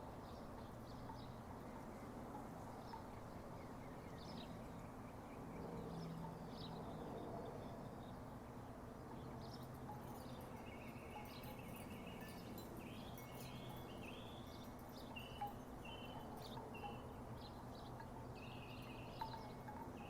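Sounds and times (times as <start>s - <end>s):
birds calling: 9.4s - 20.0s.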